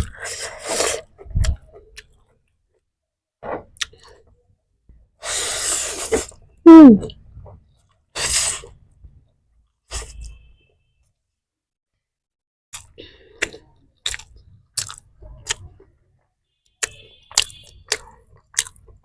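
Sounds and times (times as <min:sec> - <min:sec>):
person eating: 0:00.0 - 0:02.1, 0:12.8 - 0:15.6, 0:17.4 - 0:18.9.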